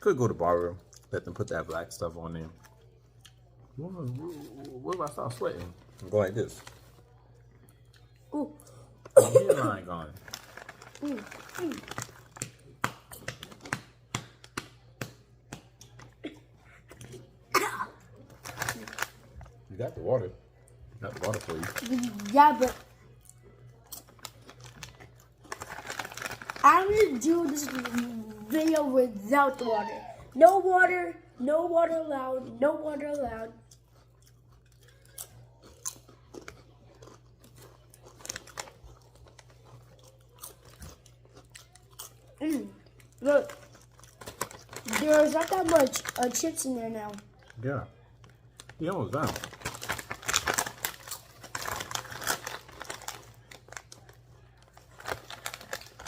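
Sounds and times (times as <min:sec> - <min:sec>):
potato chips crunching: 0:09.0 - 0:15.2, 0:18.0 - 0:20.0, 0:21.0 - 0:29.1, 0:33.7 - 0:47.6, 0:48.2 - 0:56.0.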